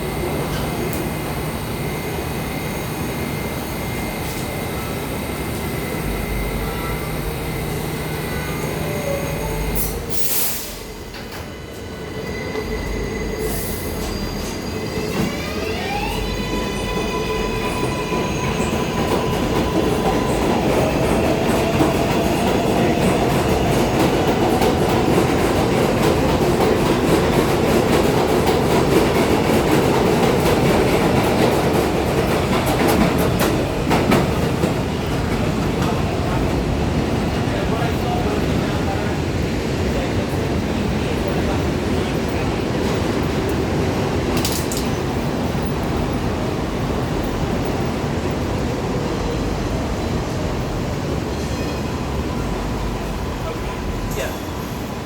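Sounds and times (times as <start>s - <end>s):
train motors whining: 0.0s - 27.6s
subway train running: 0.0s - 55.0s.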